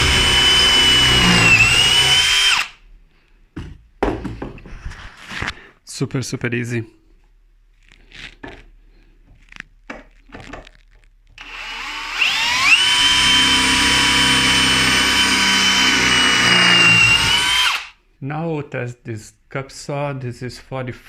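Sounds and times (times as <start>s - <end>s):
cordless drill motor whine: 0.0s - 2.8s, 11.4s - 17.9s.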